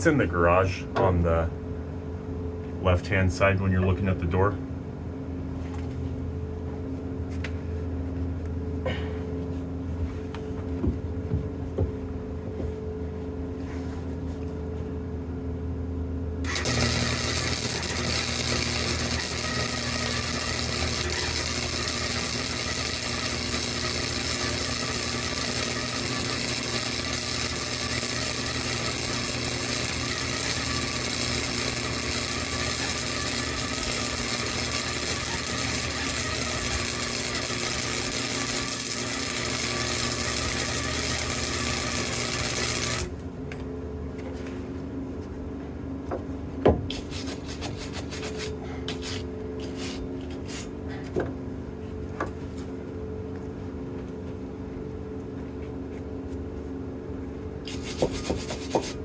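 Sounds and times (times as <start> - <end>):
welding arc crackling: 16.5 - 43.2.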